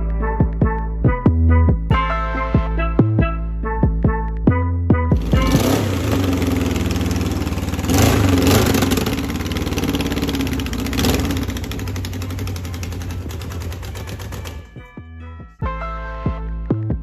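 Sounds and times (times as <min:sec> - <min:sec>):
car engine revving: 0:05.2 - 0:14.8.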